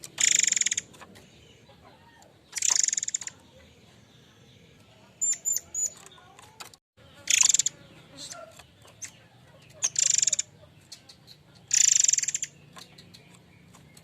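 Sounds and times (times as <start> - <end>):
bird buzzing rattle: 0.0 - 1.2, 2.5 - 3.4, 5.8 - 9.2, 9.8 - 10.5, 11.7 - 14.0.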